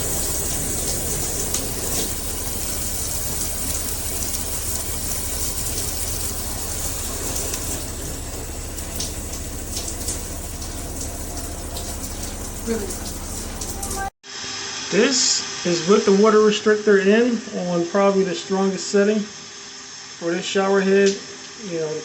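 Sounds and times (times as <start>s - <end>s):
shower head spraying water: 0.0s - 14.1s.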